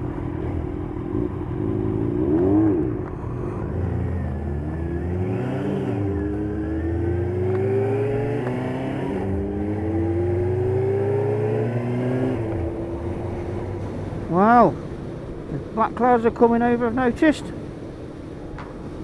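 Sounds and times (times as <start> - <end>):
motorcycle engine accelerating: 0.0 - 14.3.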